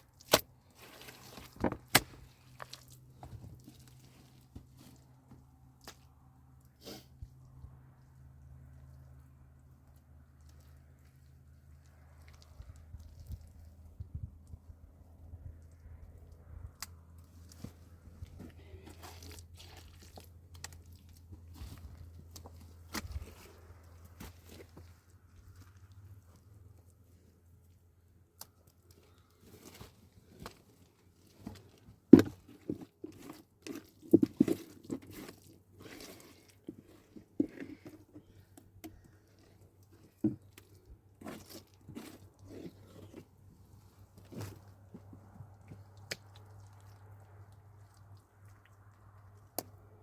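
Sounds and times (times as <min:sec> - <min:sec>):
crunching and clicking: 0:28.3 - 0:43.4.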